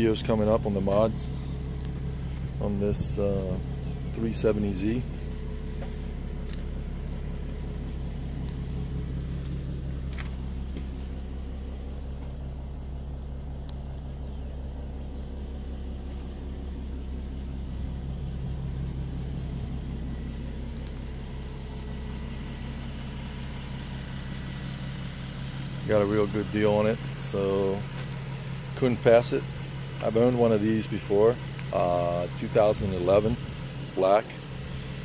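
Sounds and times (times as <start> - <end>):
car engine idling: 0.0 - 35.0
faint clicks: 13.6 - 14.1, 20.7 - 21.1.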